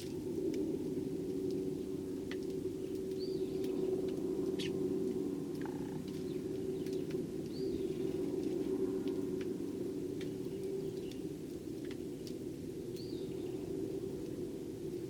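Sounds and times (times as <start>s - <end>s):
steady low hum: 0.0s - 15.0s
faint sparrow chirps: 2.8s - 4.9s.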